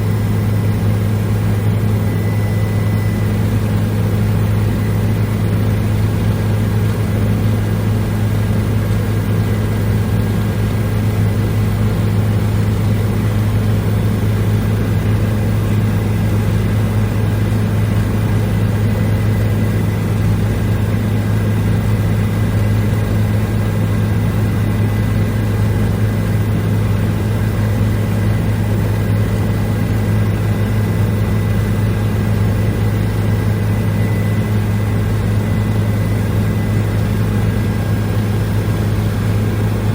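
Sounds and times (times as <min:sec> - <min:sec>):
helicopter rotor and engine drone: 0:00.0 - 0:39.9
faint high whine: 0:01.5 - 0:05.8, 0:32.8 - 0:38.2.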